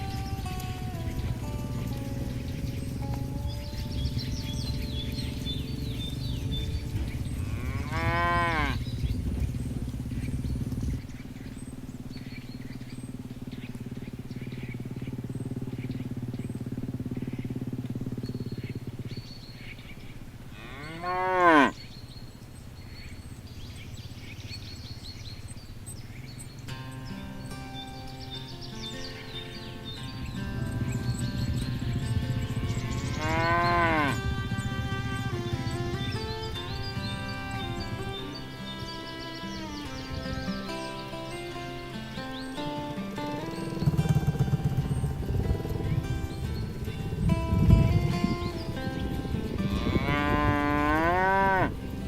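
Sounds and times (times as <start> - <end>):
cattle mooing: 0.0 - 8.8, 20.5 - 21.8, 30.4 - 42.1, 49.5 - 51.8.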